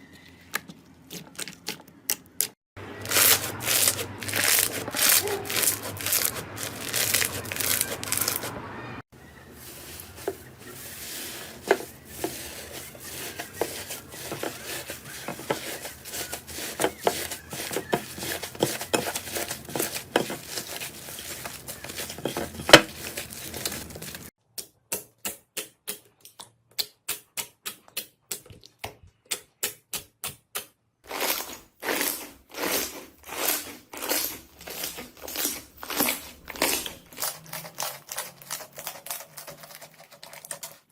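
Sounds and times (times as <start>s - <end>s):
slime squelching: 0.3s - 8.6s, 9.2s - 24.3s, 31.1s - 40.9s
slime crackling and popping: 3.1s - 8.5s.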